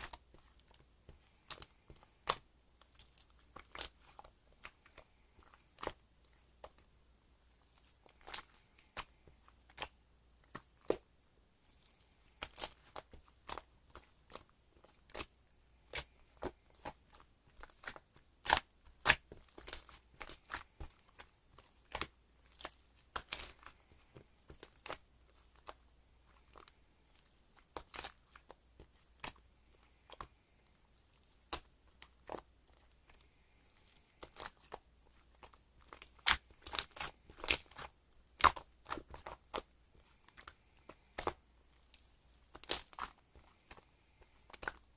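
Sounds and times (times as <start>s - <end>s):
crinkly handling noise: 0.0s - 44.9s.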